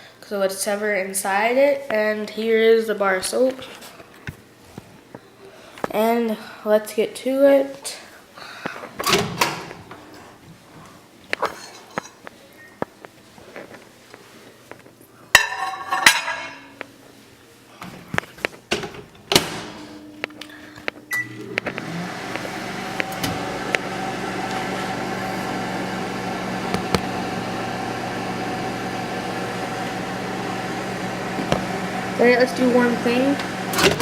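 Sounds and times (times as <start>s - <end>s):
microwave running hum: 15.4s - 34.0s
microwave door clattering: 18.7s - 20.0s
microwave beep: 19.9s - 24.8s.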